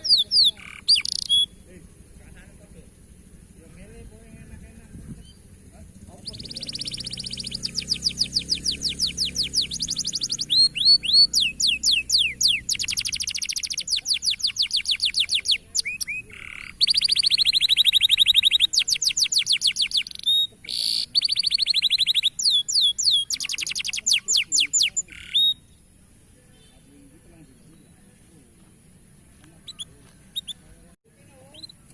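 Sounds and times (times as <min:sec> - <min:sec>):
canary singing trills: 0:00.0 - 0:31.9.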